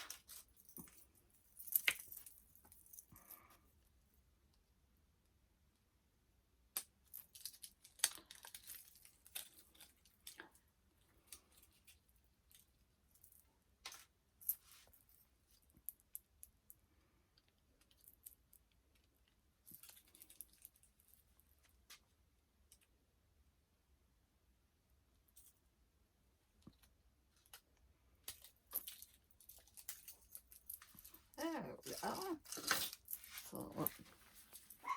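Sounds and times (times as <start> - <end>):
hands handling a toy: 6.8 - 16.8, 26.6 - 34.9.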